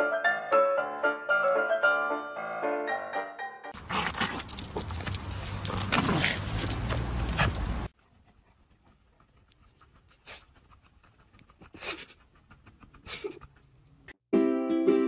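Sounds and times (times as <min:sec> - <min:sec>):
dog huffing: 0:08.7 - 0:13.9.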